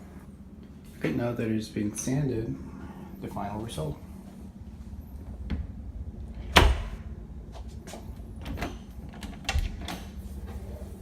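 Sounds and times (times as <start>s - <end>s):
wooden door shutting: 6.5s - 7.0s.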